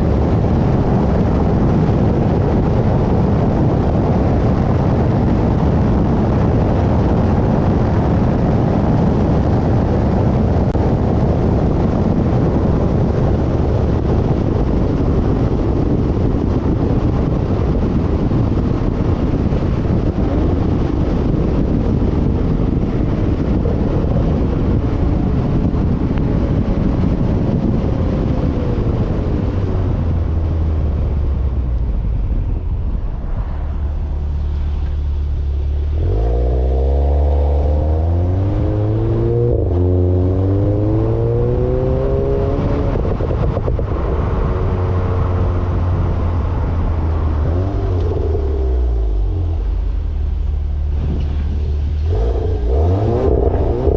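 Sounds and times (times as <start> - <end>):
car engine accelerating: 0.0 - 53.9
wind and road noise: 0.0 - 53.9.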